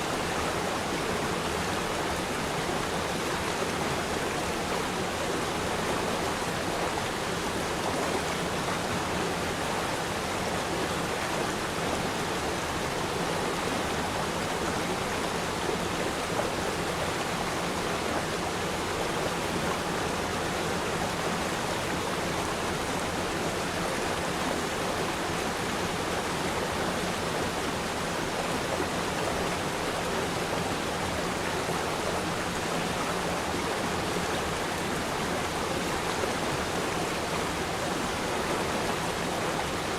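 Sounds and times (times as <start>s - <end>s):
river stream flowing: 0.0s - 39.9s.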